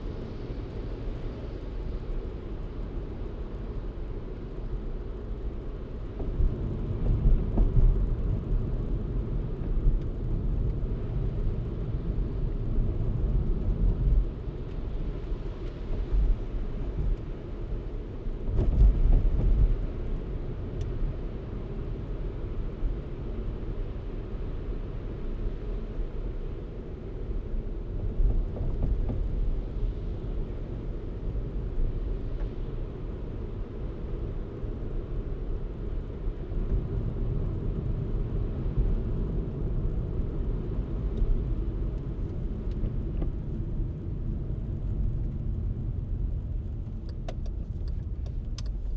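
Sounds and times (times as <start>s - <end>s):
car engine and tyres rumbling: 0.0s - 48.9s.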